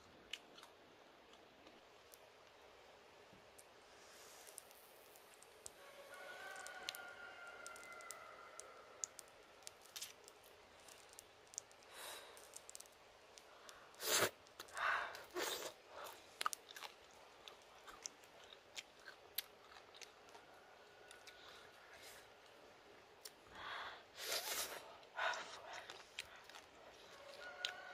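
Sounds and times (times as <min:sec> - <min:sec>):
person chewing and crunching: 0:00.3 - 0:01.9, 0:09.0 - 0:20.5, 0:24.4 - 0:27.8.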